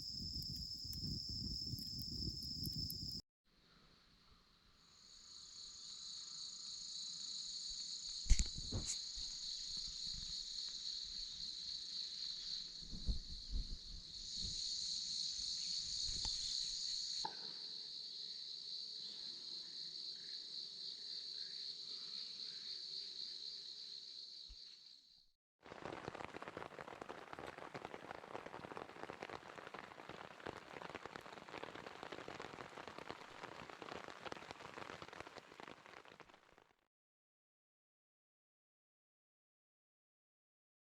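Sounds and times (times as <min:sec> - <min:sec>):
dense crackling hiss: 0:00.0 - 0:03.2, 0:25.7 - 0:36.8
high-pitched insect chorus: 0:00.0 - 0:03.2, 0:04.9 - 0:25.0.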